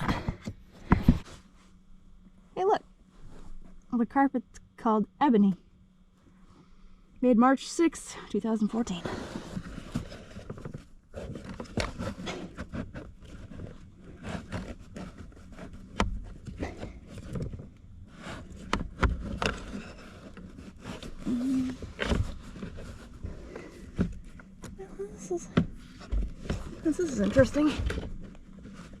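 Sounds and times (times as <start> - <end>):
hands working at plastic parts: 8.9 - 29.0.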